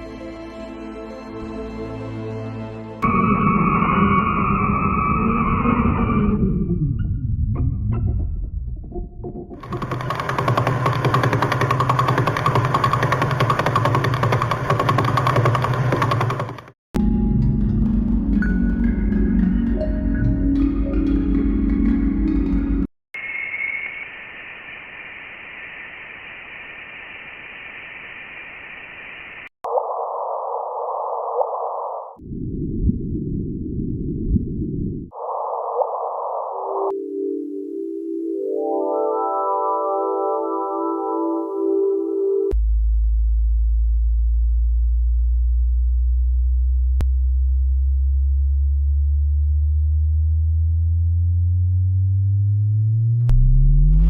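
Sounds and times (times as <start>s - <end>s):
rising electronic tones: 3.0s - 8.4s
deep rumbling noise: 32.2s - 35.1s
deep electronic hum: 42.5s - 54.0s.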